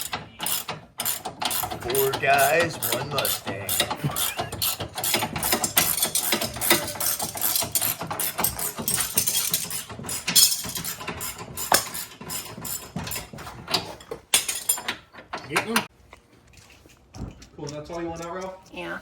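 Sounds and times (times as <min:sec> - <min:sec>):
ratchet wrench clicking: 0:00.0 - 0:13.2, 0:17.6 - 0:19.0
hand tools clattering: 0:00.0 - 0:19.0.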